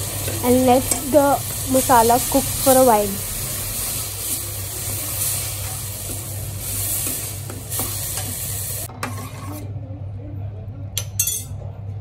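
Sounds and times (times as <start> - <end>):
food sizzling in hot oil: 0.0 - 9.6
spoon scraping pan: 5.2 - 9.7.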